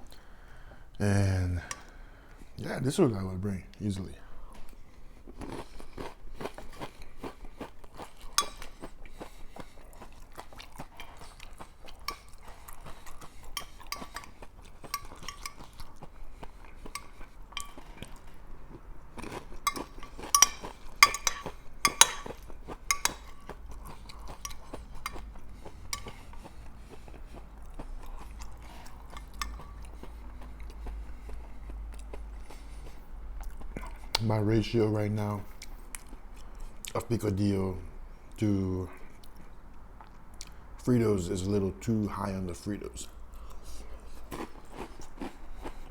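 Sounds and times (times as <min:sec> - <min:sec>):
crunching and chewing chips: 0:04.6 - 0:34.3, 0:43.3 - 0:45.9
utensil clinking against dish: 0:08.3 - 0:08.9, 0:12.0 - 0:16.1, 0:16.8 - 0:18.2, 0:19.6 - 0:26.4, 0:28.8 - 0:30.1.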